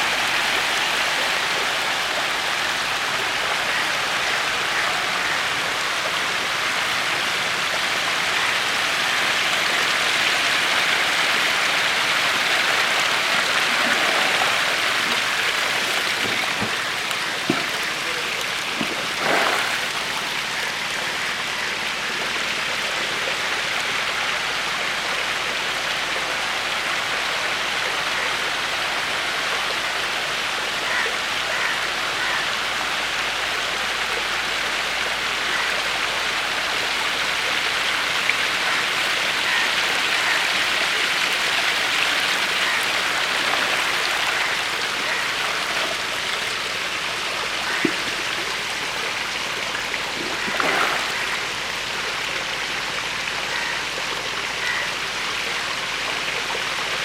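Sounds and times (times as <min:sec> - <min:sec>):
water splashing in a fish tank: 0:00.0 - 0:24.8, 0:36.4 - 0:57.0.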